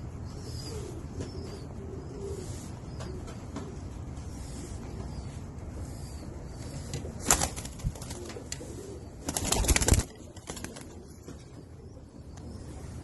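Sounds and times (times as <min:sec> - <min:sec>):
pigeons cooing: 0:00.0 - 0:13.0
wings flapping: 0:07.2 - 0:11.0.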